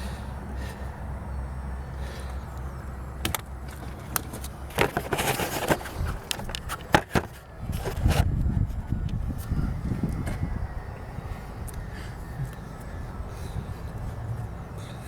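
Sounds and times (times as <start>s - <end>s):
low steady hum: 0.0s - 15.0s
rough scraping: 4.3s - 8.3s.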